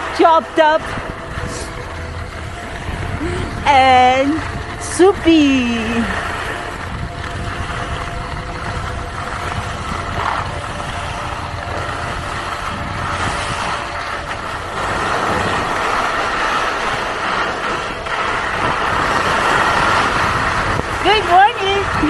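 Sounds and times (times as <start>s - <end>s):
wind on microphone: 0.0s - 22.0s
skis hissing over snow: 0.2s - 1.8s, 8.7s - 22.0s.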